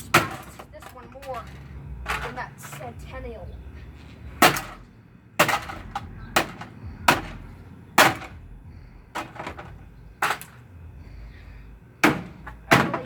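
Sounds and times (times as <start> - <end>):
hard blows on washing machine: 0.0 - 3.2, 4.4 - 10.6, 12.0 - 13.0.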